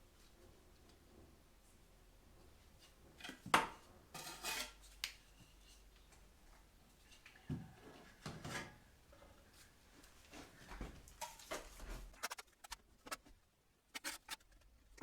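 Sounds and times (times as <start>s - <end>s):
trowel scraping mortar: 4.2s - 4.8s, 14.0s - 14.6s.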